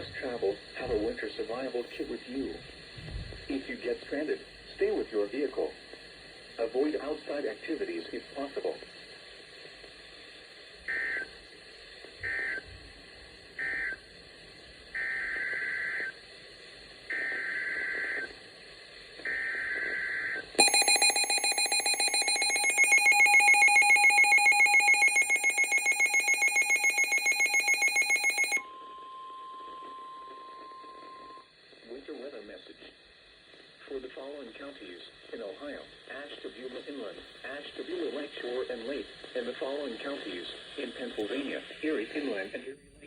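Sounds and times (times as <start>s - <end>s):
rapidly pulsing electronic beep: 20.6s - 28.6s.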